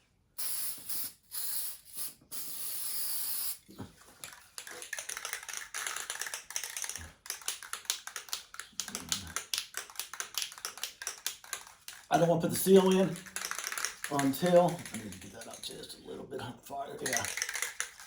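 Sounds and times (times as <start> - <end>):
spray paint can hissing: 0.4 - 3.6, 12.8 - 15.5
clicks and rattles: 4.2 - 15.8, 17.0 - 18.0.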